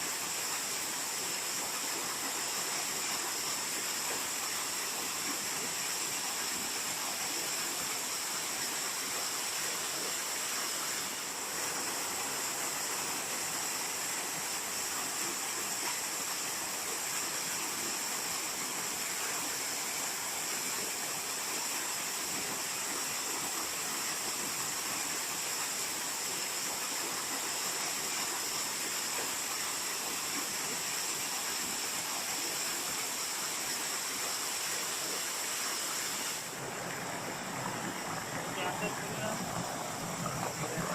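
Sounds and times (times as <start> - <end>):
waterfall rushing: 35.8 - 40.9.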